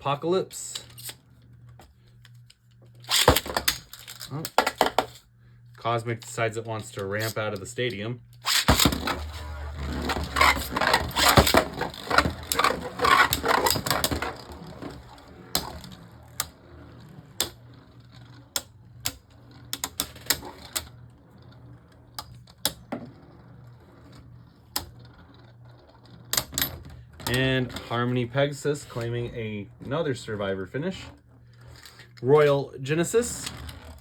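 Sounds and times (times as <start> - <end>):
spinning tops clashing and rattling: 3.1 - 5.2, 8.4 - 21.8.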